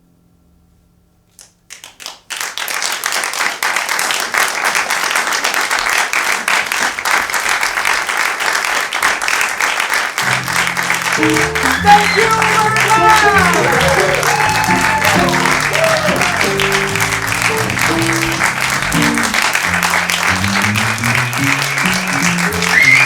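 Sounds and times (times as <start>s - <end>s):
audience applauding: 1.4s - 23.0s
guitar music: 10.4s - 22.7s.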